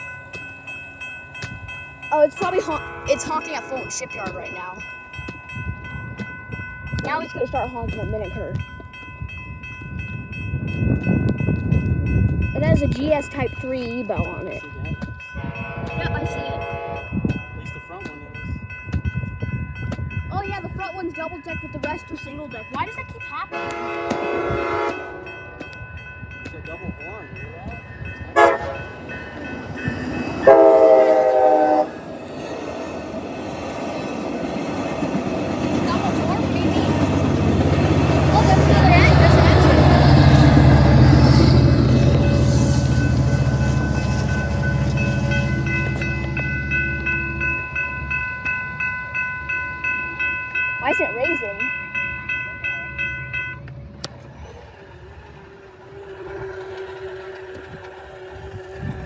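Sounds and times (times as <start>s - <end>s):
level-crossing bell: 0.0s - 54.4s
passing train rumble: 0.0s - 59.0s
train horn blast: 2.6s - 3.9s, 15.4s - 17.2s, 23.5s - 25.5s, 28.4s - 29.0s, 30.4s - 32.0s.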